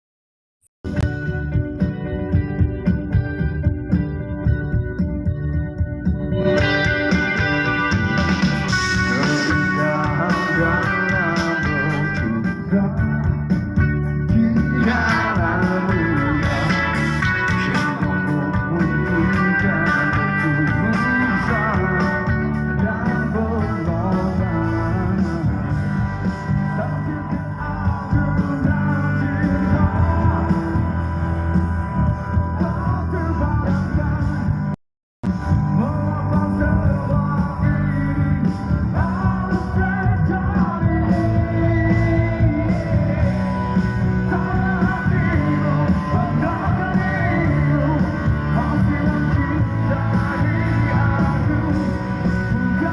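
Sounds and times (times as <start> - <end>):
electric guitar: 0.9 - 52.9
live rock band: 0.9 - 52.9
lead singer: 6.2 - 34.7, 35.4 - 52.9.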